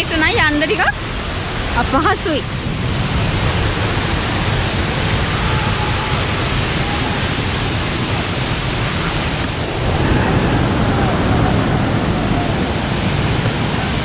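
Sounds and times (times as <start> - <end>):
waterfall rushing over rock: 0.0 - 14.0.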